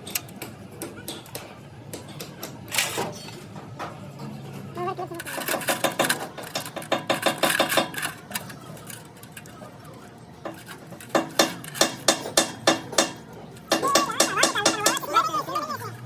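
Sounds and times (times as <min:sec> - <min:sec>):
hammer striking metal: 0:11.1 - 0:15.1.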